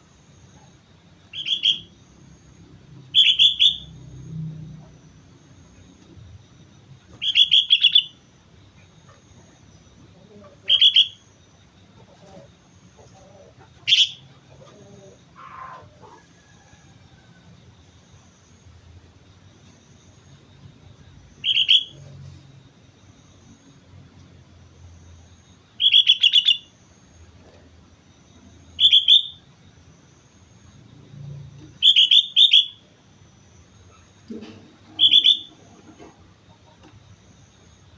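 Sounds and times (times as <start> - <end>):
bulbul chattering calls: 1.3 - 2.0, 3.1 - 4.0, 7.1 - 8.2, 8.8 - 11.3, 12.0 - 16.2, 21.4 - 22.1, 25.8 - 26.7, 28.8 - 29.4, 31.8 - 32.8, 33.9 - 36.9.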